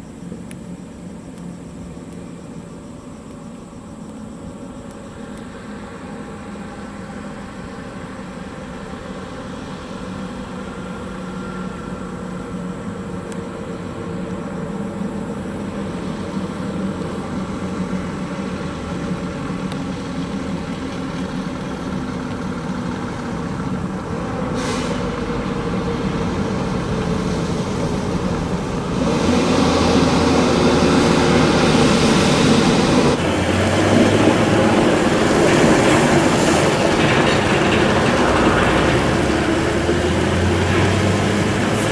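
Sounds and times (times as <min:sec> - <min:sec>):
heavy truck engine humming: 0:00.0 - 0:41.9
brief hiss: 0:24.6 - 0:25.2.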